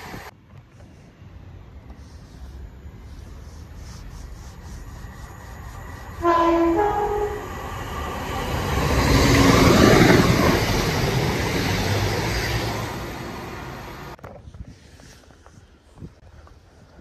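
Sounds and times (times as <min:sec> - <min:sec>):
train wheel and engine rumble: 0:00.0 - 0:17.0
train two-note horn: 0:06.2 - 0:07.5.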